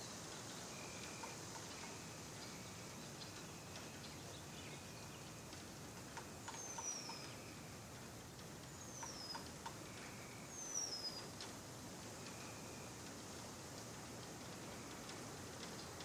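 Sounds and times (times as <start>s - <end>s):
faint outdoor hiss: 0.0s - 16.0s
soft ticks: 0.3s - 4.4s, 5.3s - 16.0s
bird whistling call: 6.5s - 7.4s, 8.8s - 9.5s, 10.1s - 11.3s.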